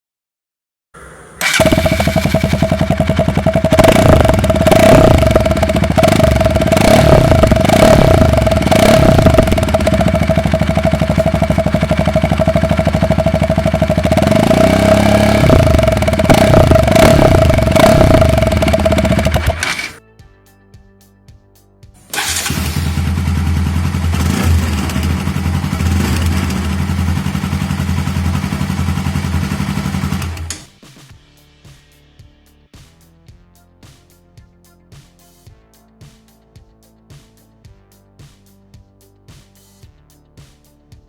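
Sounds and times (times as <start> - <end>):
motorcycle engine revving: 1.0 - 20.0, 22.1 - 30.7.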